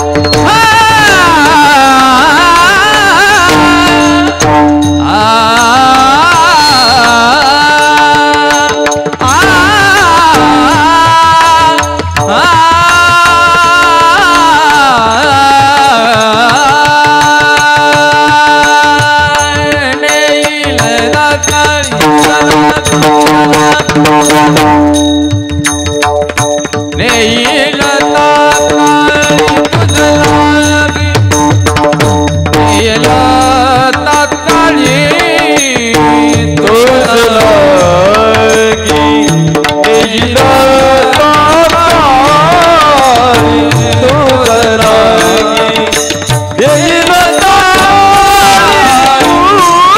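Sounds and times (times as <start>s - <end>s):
devotional singing: 0.0s - 22.4s, 32.7s - 49.9s
tabla drumming: 0.0s - 49.9s.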